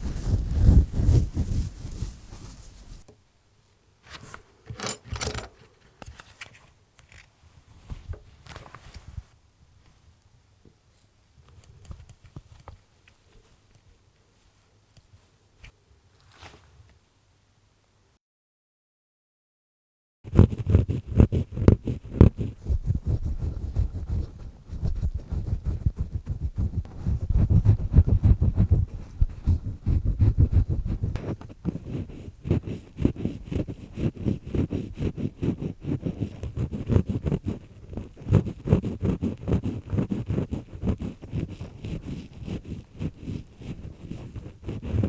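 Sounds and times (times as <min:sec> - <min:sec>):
earpick scraping in ear: 0:04.7 - 0:05.5.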